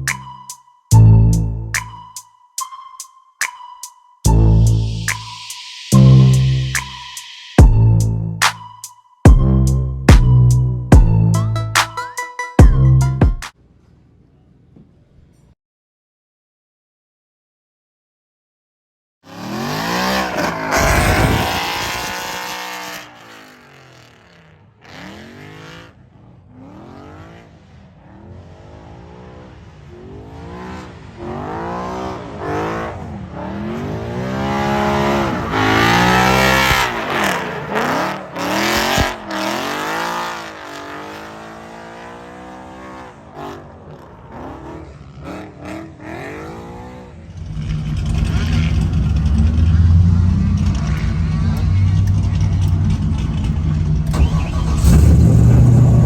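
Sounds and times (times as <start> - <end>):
car engine revving: 19.3 - 56.0.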